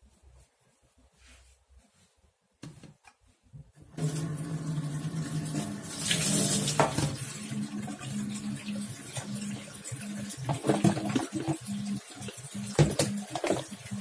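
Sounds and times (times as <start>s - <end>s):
water running into sink: 3.9s - 14.0s.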